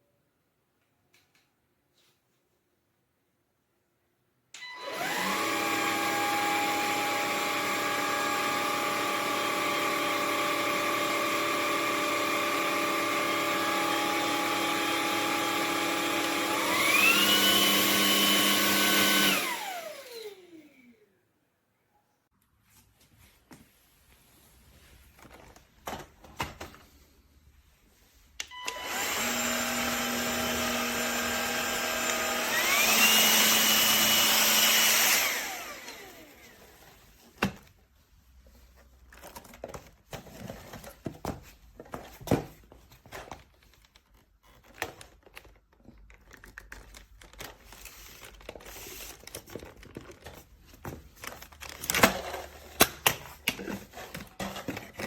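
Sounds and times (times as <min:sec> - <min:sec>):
vacuum motor whine: 0:04.6 - 0:21.0, 0:28.5 - 0:36.8.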